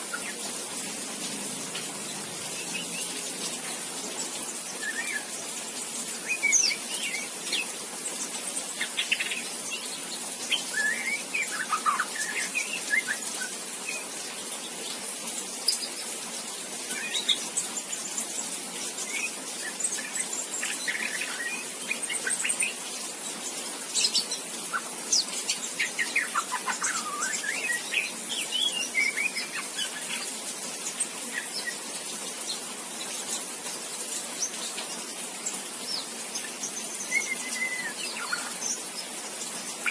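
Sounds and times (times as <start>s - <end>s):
steady hiss: 0.0s - 39.9s
young bird chirping and whistling: 10.5s - 14.2s, 24.0s - 30.3s, 37.0s - 38.6s.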